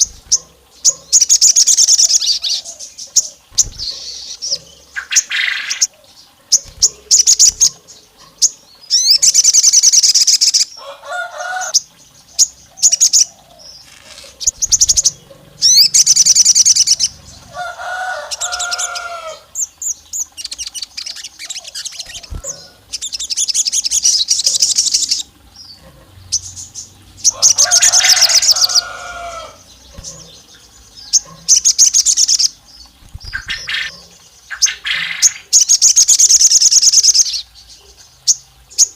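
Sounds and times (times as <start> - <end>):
bird sharp chirps: 0.0 - 5.9, 12.4 - 17.2, 19.8 - 25.3, 31.1 - 33.9
bird high-pitched trills: 0.0 - 7.8, 8.4 - 25.8.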